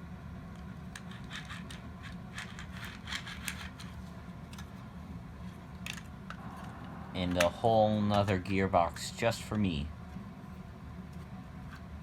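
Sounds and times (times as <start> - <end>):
steady low hum: 0.0 - 12.0
plastic toy parts clicking: 0.9 - 3.9.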